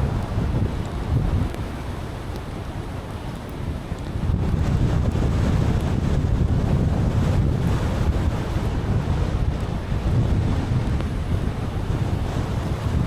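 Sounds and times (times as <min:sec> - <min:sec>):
car driving on wet road: 0:00.0 - 0:13.0
wind noise on microphone: 0:00.0 - 0:13.0.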